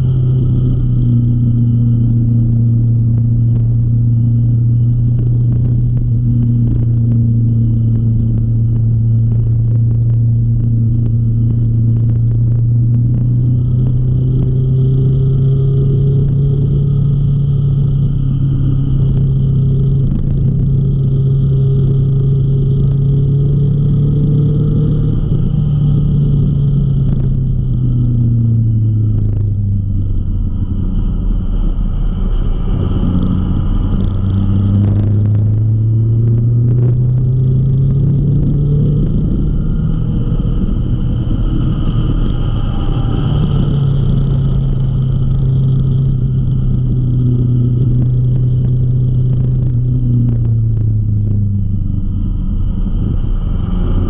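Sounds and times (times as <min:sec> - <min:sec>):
low rumble: 0:00.0 - 0:54.0
motorcycle engine: 0:00.0 - 0:54.0.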